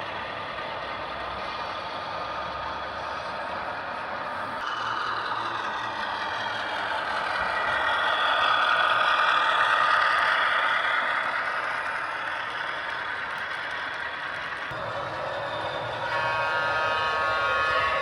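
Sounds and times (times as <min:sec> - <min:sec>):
wheels rattling on rails: 0:00.0 - 0:18.0
model train motor whir: 0:04.7 - 0:18.0.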